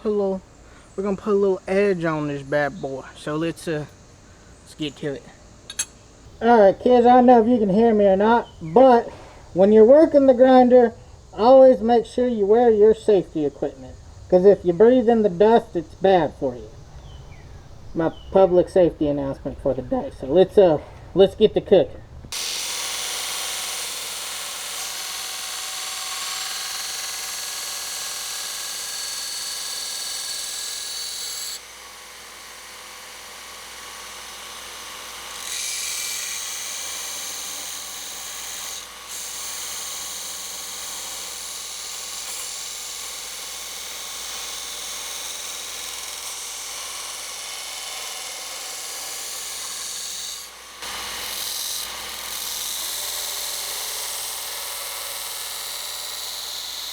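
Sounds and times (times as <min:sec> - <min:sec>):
electric grinder grinding steel: 0:22.3 - 0:56.9.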